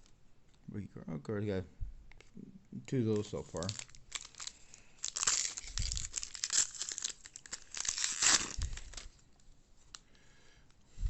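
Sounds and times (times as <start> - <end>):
wrapper crinkling and tearing: 3.1 - 9.2.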